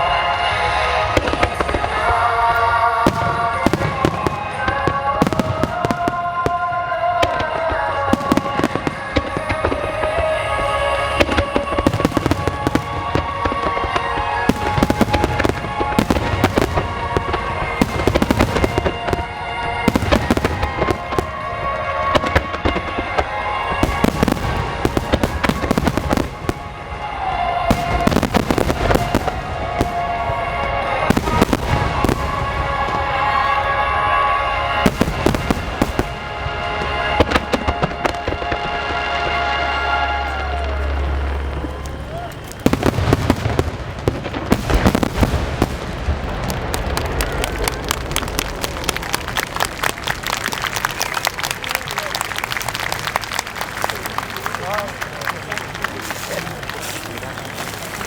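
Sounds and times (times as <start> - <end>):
music: 0.0 - 46.4
fireworks booming and crackling: 0.0 - 58.0.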